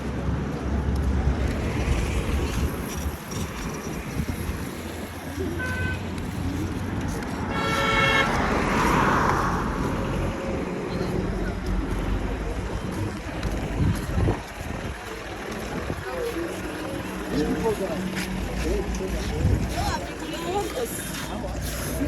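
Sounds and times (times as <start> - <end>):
vehicles passing: 0.0 - 22.0
car horn toot: 5.6 - 6.0, 7.5 - 8.4.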